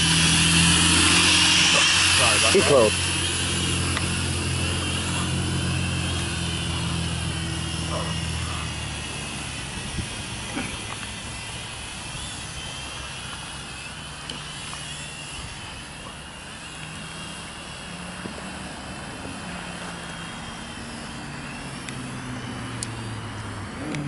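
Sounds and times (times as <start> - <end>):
drone propellers whining: 0.0 - 24.0
wind rumbling on microphone: 9.6 - 10.4.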